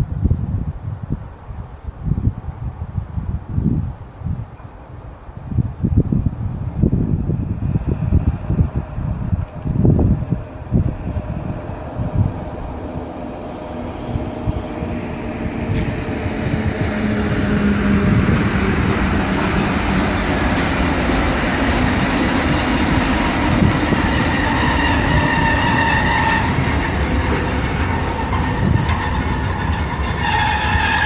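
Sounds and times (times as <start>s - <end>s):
freight train rumbling past: 2.0s - 31.0s
wheels squealing: 17.1s - 31.0s.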